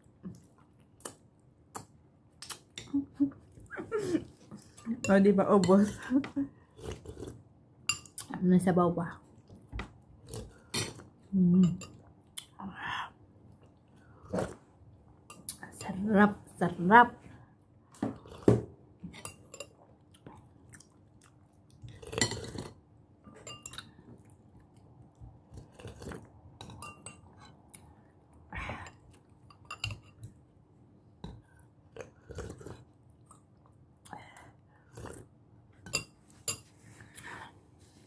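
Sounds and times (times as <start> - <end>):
close chewing of food: 5.8 - 7.6, 18.1 - 36.0
metal spoon clinking on dishes: 23.3 - 23.9, 26.6 - 27.3, 29.5 - 30.2.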